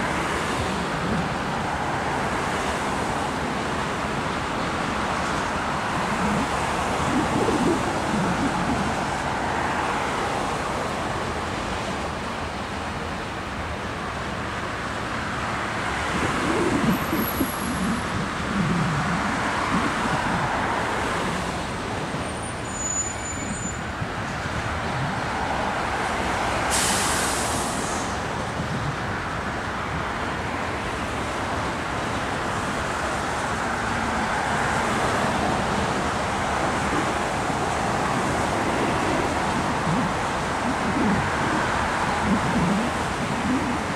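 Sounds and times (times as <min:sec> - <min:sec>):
city traffic: 0:00.0 - 0:43.9
air hiss: 0:26.7 - 0:28.2.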